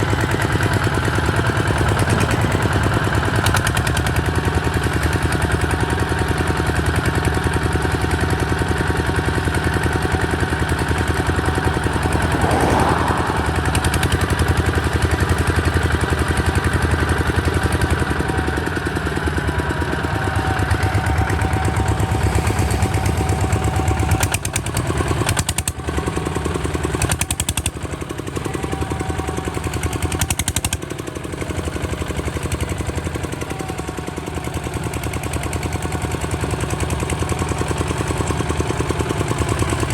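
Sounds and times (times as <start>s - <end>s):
diesel engine running: 0.0s - 15.4s, 16.5s - 27.2s.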